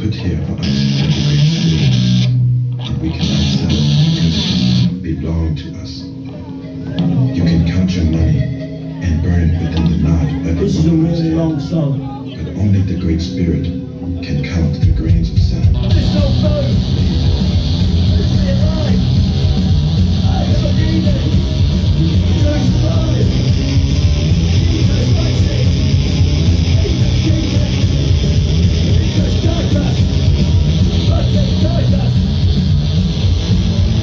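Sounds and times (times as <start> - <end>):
drums: 0.0 - 5.0, 14.6 - 34.0
bass guitar: 0.0 - 11.3, 13.2 - 34.0
distorted electric guitars: 0.0 - 34.0.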